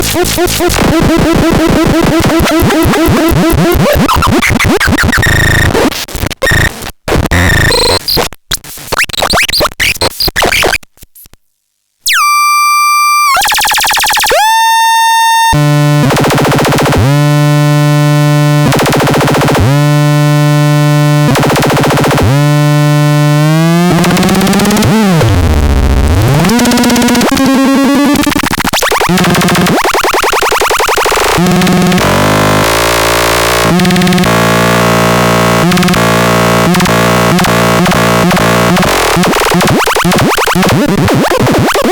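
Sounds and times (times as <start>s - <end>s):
buzzy synthesizer bass note: 0.0s - 3.8s, 12.1s - 41.4s
glitchy synthesizer noise bursts: 6.4s - 8.1s, 12.1s - 41.9s.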